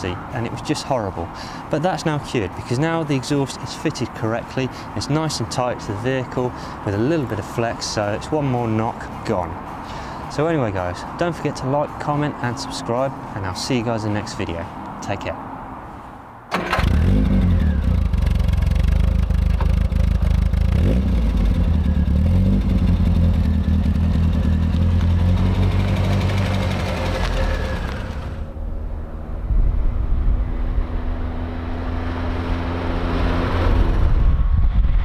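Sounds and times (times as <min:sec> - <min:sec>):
car driving: 0:12.4 - 0:35.0
car engine revving: 0:16.6 - 0:28.6.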